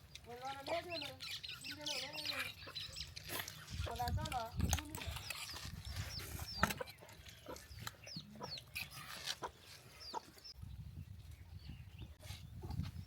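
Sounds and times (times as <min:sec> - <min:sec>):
chickens clucking: 0:00.4 - 0:10.5.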